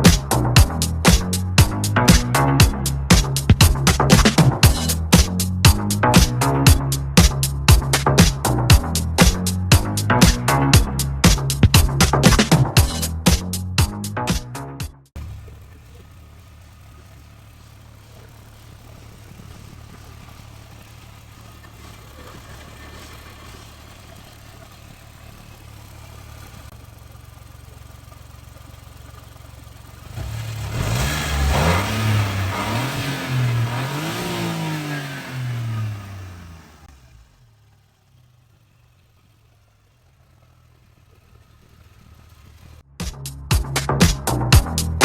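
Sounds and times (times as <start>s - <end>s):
car engine idling and revving: 0.0s - 45.0s.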